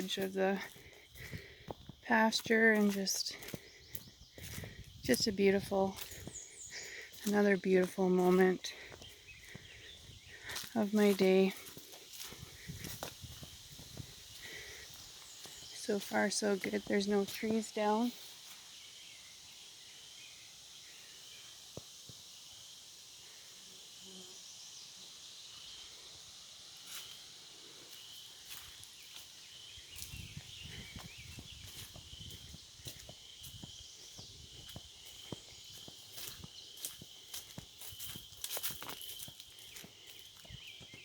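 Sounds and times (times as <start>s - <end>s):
footsteps on a trail: 0.0s - 18.7s, 26.8s - 41.0s
faint high bird chirping: 27.9s - 41.0s.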